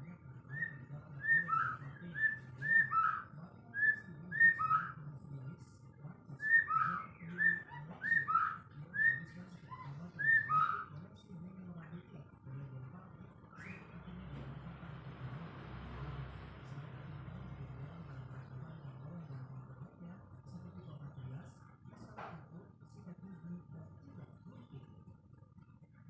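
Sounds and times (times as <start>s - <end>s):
bird singing whistled notes: 0.5s - 5.0s, 6.4s - 9.4s, 10.2s - 10.9s, 13.5s - 14.0s.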